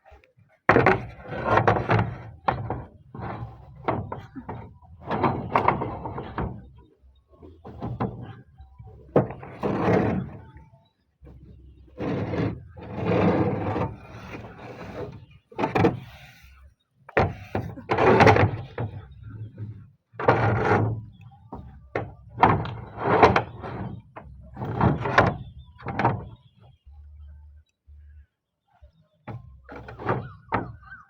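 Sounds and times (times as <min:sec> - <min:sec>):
roof tiles scraping together: 0:00.7 - 0:06.8, 0:07.4 - 0:10.6, 0:11.3 - 0:16.5, 0:17.2 - 0:26.4.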